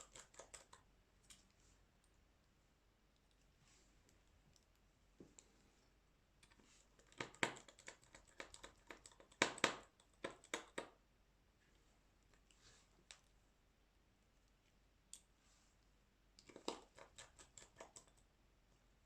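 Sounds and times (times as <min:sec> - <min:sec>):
tools clicking and tapping on phone: 0:00.0 - 0:01.4, 0:06.4 - 0:11.0, 0:16.4 - 0:18.2.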